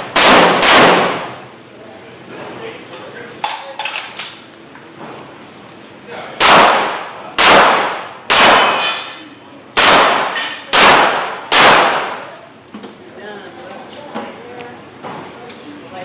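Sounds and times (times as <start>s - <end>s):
rifle shots with echo: 0.0s - 1.4s, 6.4s - 9.0s, 9.8s - 12.3s.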